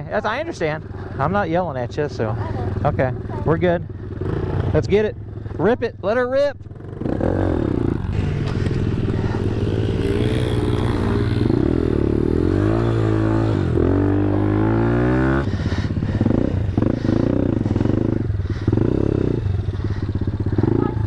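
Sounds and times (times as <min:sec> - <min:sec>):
pit bike engine revving: 0:02.2 - 0:05.6, 0:06.6 - 0:21.0.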